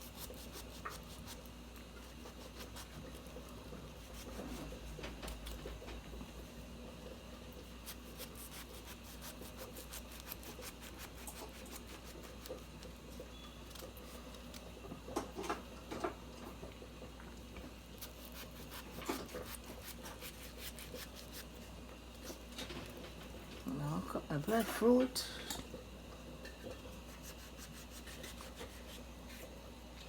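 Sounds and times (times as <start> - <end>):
knife cutting fruit: 0.0 - 5.7, 7.6 - 13.0, 18.0 - 22.4, 27.0 - 29.4.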